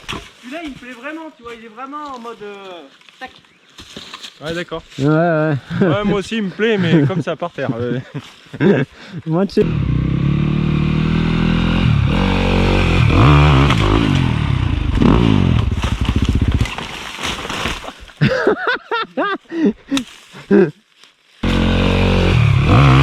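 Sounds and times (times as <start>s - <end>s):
dirt bike engine revving: 9.6s - 16.9s, 21.4s - 23.0s.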